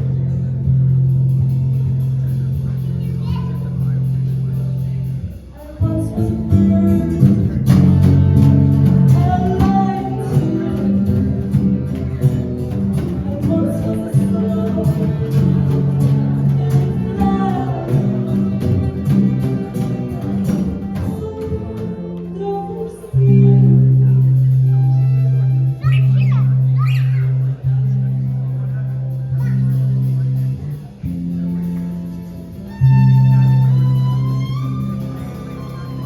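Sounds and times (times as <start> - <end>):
plucked guitar: 0.0 - 36.0
person singing: 5.6 - 8.2, 8.8 - 12.0, 13.0 - 19.3.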